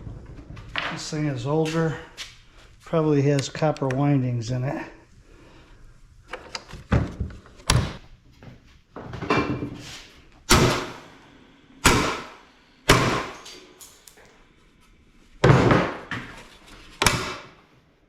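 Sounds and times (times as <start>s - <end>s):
heavy metal bangs: 10.5s - 11.1s, 11.8s - 13.4s.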